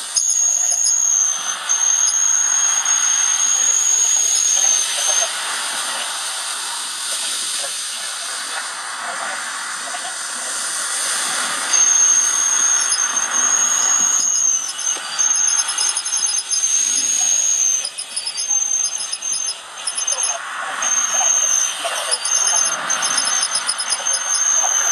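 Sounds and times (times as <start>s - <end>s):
cordless drill whining: 0.0s - 5.3s, 11.7s - 24.9s
steady hiss: 0.0s - 24.9s.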